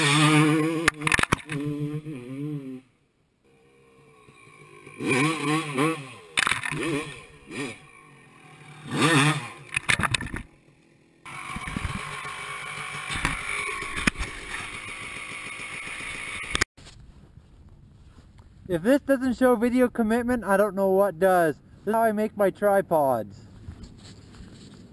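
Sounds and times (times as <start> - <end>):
motorcycle engine revving: 0.0 - 2.9, 3.5 - 16.7.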